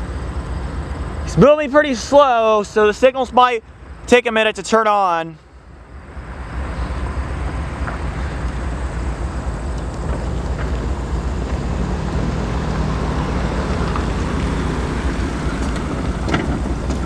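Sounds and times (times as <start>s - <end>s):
wind buffeting microphone: 6.4s - 17.0s.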